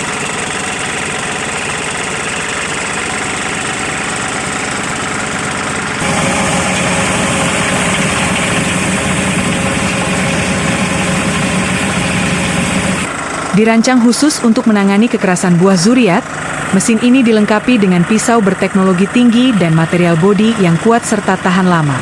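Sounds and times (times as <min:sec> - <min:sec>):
fruit chopping machine motor: 0:06.0 - 0:13.1.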